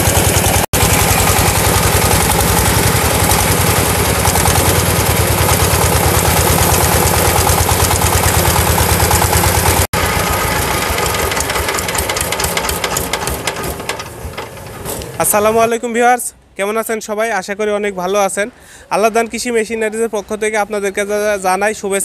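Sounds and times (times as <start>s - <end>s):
diesel engine running: 0.0s - 15.7s.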